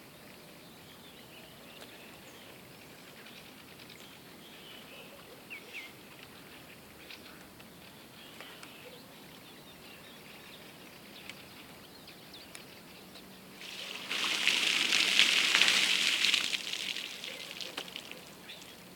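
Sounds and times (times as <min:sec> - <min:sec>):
faint birdsong: 0:00.2 - 0:18.9
water splashing over person: 0:13.6 - 0:18.9.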